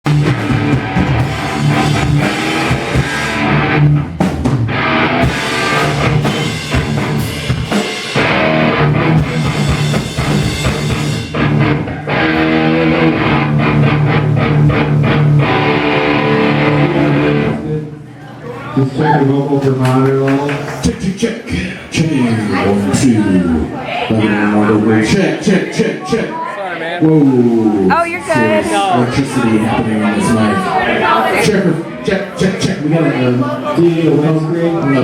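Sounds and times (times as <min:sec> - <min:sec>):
drum kit with bass drum: 0:00.0 - 0:11.8
electric guitar: 0:00.0 - 0:17.8.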